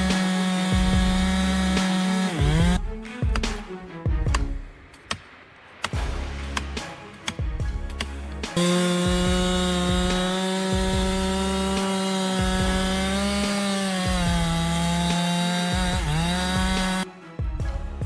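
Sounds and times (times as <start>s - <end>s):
chainsaw cutting wood: 0.0s - 2.8s, 8.6s - 17.1s.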